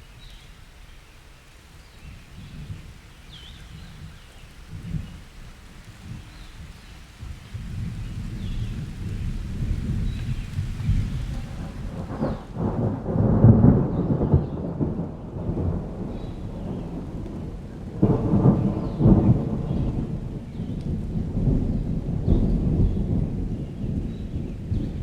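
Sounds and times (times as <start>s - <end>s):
rain: 0.0s - 25.0s
thunder rumbling: 2.3s - 25.0s.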